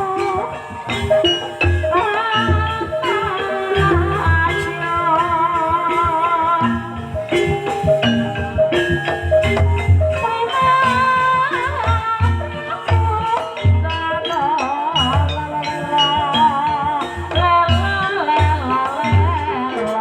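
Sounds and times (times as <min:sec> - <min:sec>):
deep drum beats: 0:00.0 - 0:14.2
held gamelan notes: 0:00.0 - 0:20.0
person singing wavering melody: 0:00.0 - 0:20.0.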